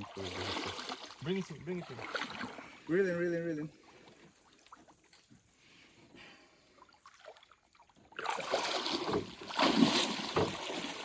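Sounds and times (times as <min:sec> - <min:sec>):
fish thrashing in water: 0:08.1 - 0:11.0.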